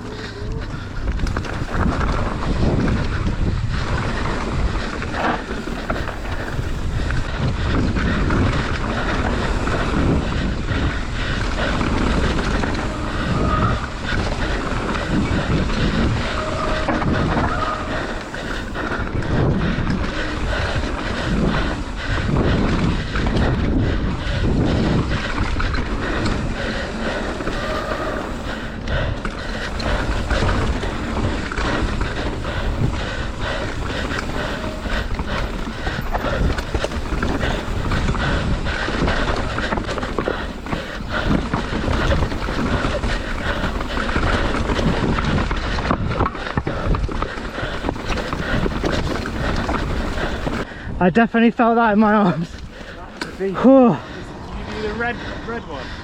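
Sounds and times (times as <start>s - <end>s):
bike rattling: 0.0s - 56.0s
wind buffeting microphone: 0.0s - 56.0s
tyres running over stones: 24.4s - 50.7s.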